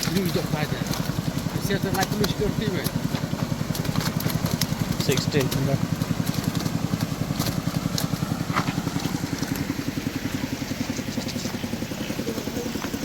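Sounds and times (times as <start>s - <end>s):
small engine idling: 0.0s - 13.0s.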